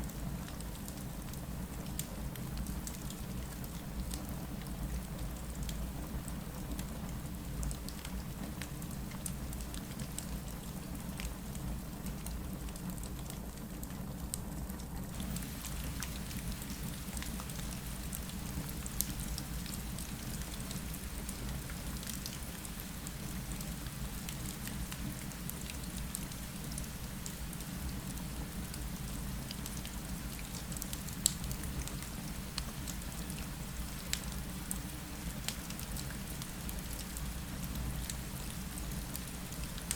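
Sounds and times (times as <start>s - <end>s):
rain on a window: 0.0s - 39.9s
fireplace crackling: 15.2s - 27.8s.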